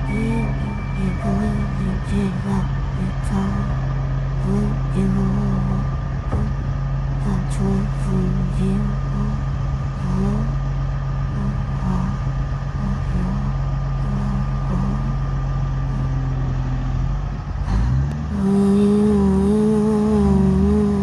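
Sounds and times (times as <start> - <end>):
heavy machinery diesel engine: 0.0 - 21.0.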